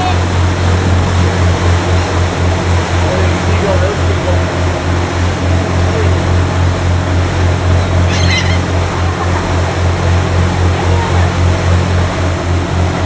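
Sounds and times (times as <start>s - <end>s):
boat motor droning: 0.0s - 13.0s
water noise: 0.0s - 13.0s
wind: 0.0s - 13.0s
seagull call: 7.7s - 9.8s.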